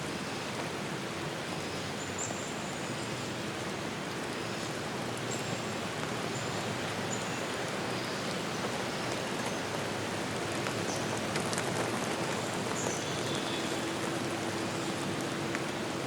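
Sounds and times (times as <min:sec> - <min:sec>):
falling water rushing: 0:00.0 - 0:16.0.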